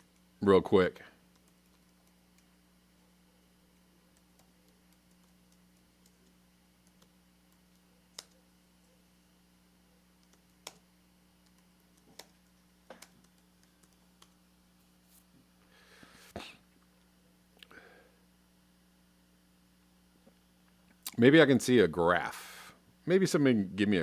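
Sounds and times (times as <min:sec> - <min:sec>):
low electrical hum: 0:00.0 - 0:24.0
computer mouse and keyboard clicks: 0:04.1 - 0:08.4, 0:10.2 - 0:10.8, 0:11.4 - 0:14.4.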